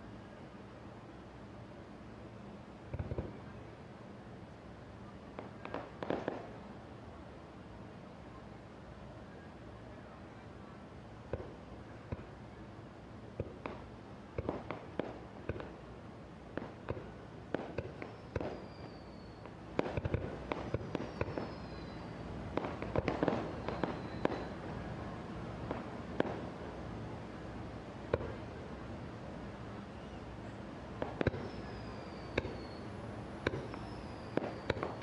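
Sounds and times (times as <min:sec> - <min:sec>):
fireworks booms and cracks: 0:02.9 - 0:03.4, 0:05.3 - 0:06.5, 0:13.4 - 0:15.8, 0:16.5 - 0:18.8, 0:19.8 - 0:21.9, 0:22.5 - 0:24.6, 0:25.6 - 0:26.6, 0:31.0 - 0:32.8, 0:33.4 - 0:35.0
fireworks whistles falling in pitch: 0:17.6 - 0:24.6, 0:31.0 - 0:35.0.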